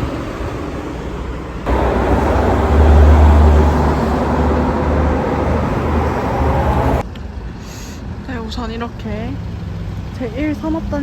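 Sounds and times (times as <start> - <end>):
road traffic noise: 0.0 - 11.0
large vehicle passing close: 1.7 - 7.0
loud deep rumble: 1.7 - 7.0.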